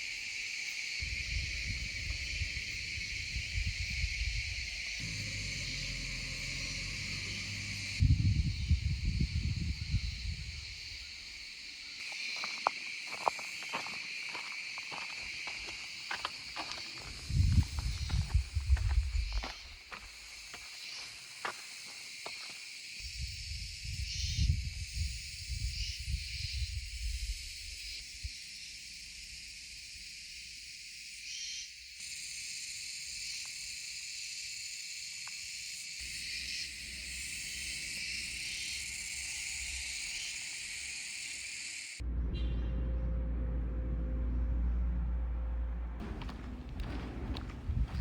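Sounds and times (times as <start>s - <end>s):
insects chirping: 0.0s - 42.0s, 46.0s - 48.0s
loud low hum: 1.0s - 10.6s, 42.0s - 48.0s
low rumbling gusts: 1.0s - 11.4s, 16.6s - 20.2s, 42.0s - 48.0s.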